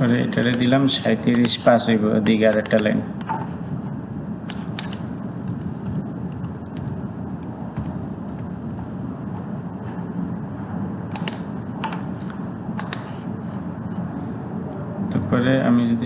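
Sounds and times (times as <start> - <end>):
steady low background hum: 0.0 - 16.0
computer keyboard and mouse clicks: 0.4 - 0.7, 1.3 - 1.6, 4.5 - 7.0, 11.1 - 13.1.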